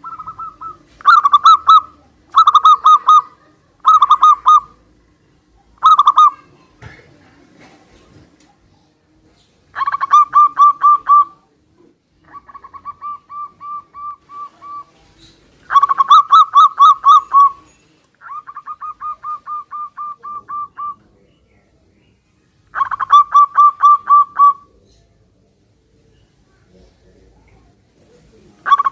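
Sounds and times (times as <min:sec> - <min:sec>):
doves cooing: 0:00.0 - 0:05.0, 0:05.6 - 0:06.4, 0:09.7 - 0:11.5, 0:12.2 - 0:21.2, 0:22.7 - 0:25.1, 0:28.0 - 0:28.9.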